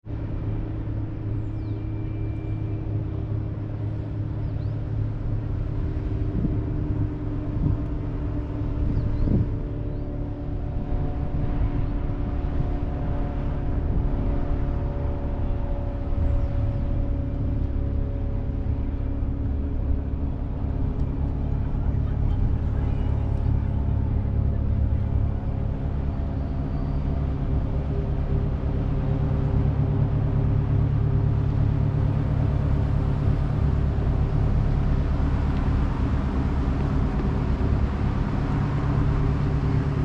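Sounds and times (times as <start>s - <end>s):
engine running: 0.0s - 40.0s.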